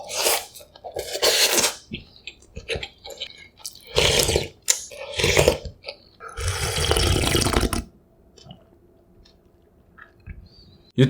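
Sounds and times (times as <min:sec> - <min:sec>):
wet noodle slurps: 0:00.0 - 0:01.9, 0:03.7 - 0:05.7, 0:06.3 - 0:07.9.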